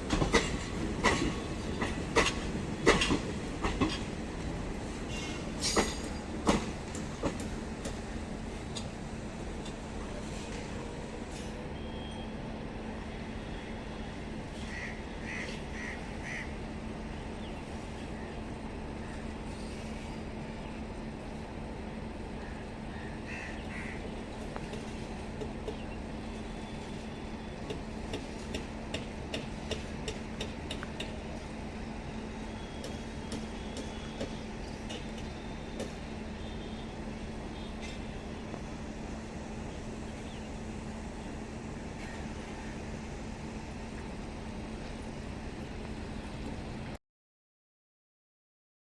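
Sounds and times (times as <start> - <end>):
electric train running: 26.3 - 46.9.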